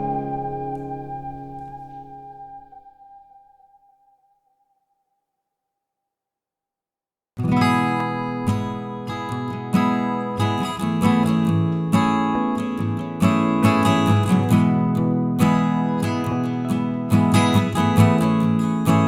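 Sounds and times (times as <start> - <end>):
strummed acoustic guitar: 0.0 - 2.7, 7.4 - 19.0.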